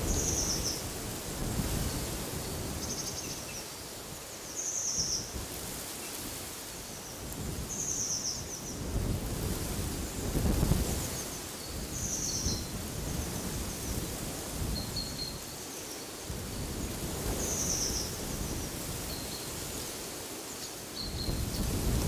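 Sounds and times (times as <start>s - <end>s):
wind gusting through trees: 0.0s - 22.0s
small birds chirping: 20.4s - 22.0s.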